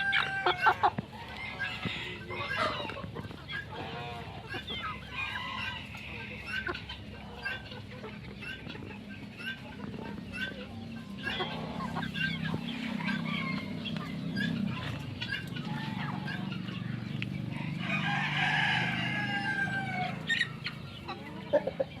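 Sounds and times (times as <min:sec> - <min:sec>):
chickens clucking: 0:00.0 - 0:22.0
rooster crowing: 0:17.6 - 0:20.3.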